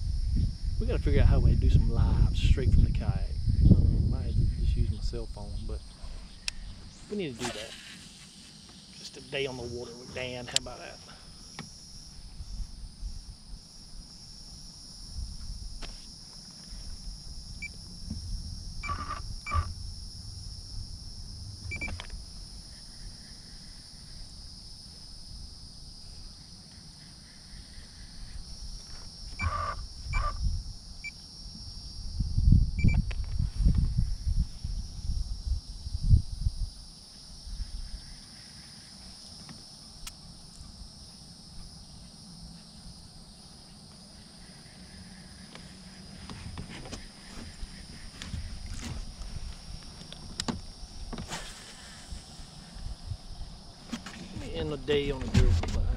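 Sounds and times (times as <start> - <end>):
insects chirping: 0.0 - 55.9
short insect calls: 0.0 - 55.9
low rumbling noise: 17.3 - 22.5.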